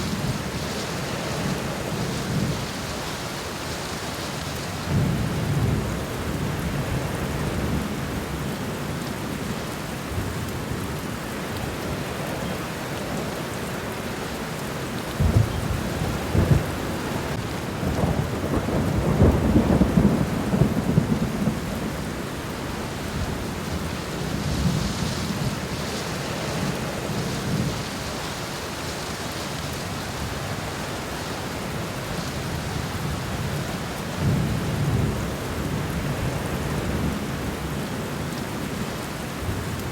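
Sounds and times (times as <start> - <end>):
rain falling on plants: 0.0 - 39.9.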